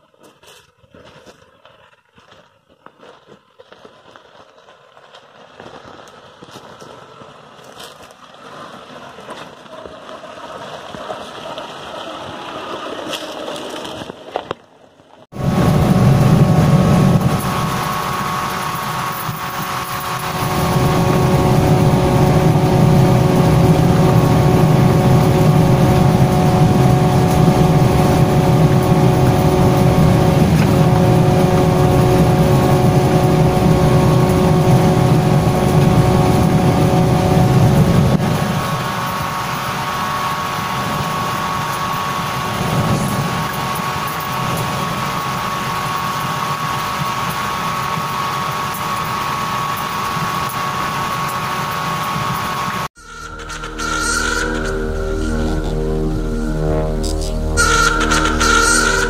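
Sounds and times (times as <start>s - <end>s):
engine drone inside cabin: 15.3s - 59.0s
off-road vehicle engine: 15.4s - 59.0s.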